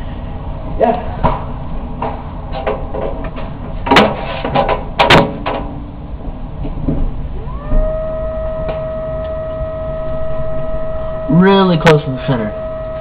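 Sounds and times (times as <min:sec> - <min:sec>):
hum rising in pitch: 0:07.1 - 0:13.0.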